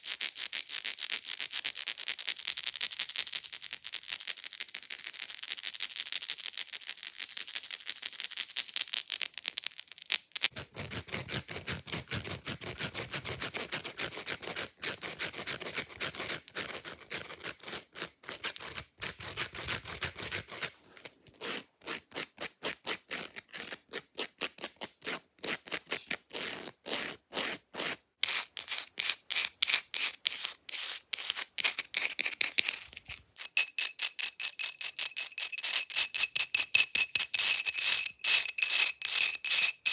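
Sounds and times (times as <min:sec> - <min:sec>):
fake nails scratching surfaces: 0:18.4 - 0:21.7, 0:25.7 - 0:39.9.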